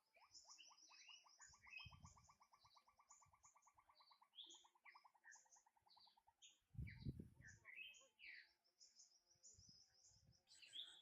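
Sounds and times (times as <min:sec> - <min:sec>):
high bird chirps: 0:00.0 - 0:08.5.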